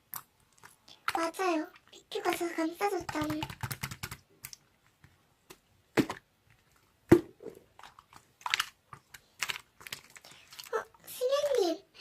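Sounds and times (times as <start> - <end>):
slime popping and crackling: 7.1 - 10.9.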